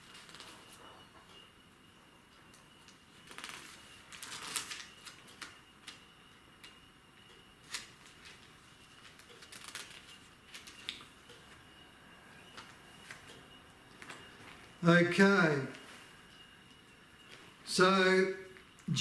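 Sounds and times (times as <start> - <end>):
pages rustling: 0.2 - 0.8, 3.2 - 6.0, 9.0 - 11.0
faint steady high tone: 10.0 - 19.0.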